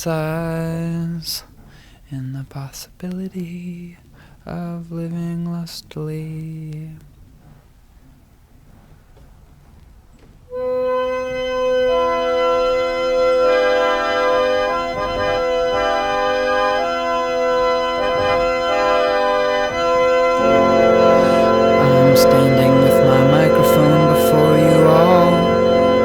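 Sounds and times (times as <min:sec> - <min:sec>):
organ chord: 0:10.5 - 0:26.0.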